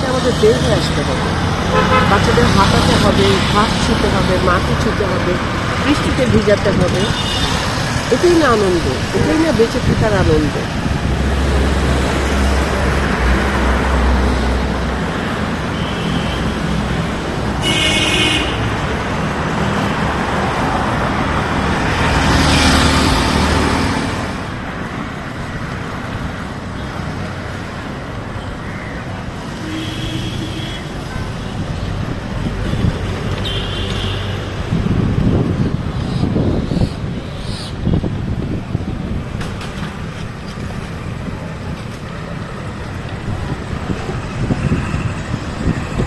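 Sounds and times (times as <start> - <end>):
road traffic noise: 0.0 - 46.0
vehicle horns tooting: 1.6 - 5.3, 5.9 - 8.3, 15.7 - 17.0, 17.6 - 18.8, 29.6 - 31.5, 32.7 - 34.4.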